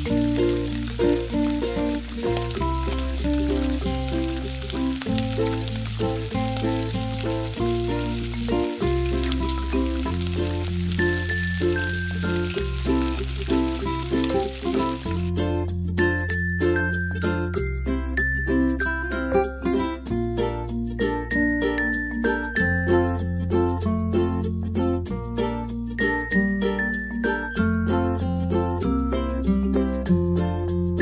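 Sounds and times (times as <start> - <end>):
tomatoes sizzling in hot oil: 0.0 - 20.0
background music with bass line: 0.0 - 21.3, 27.8 - 31.0.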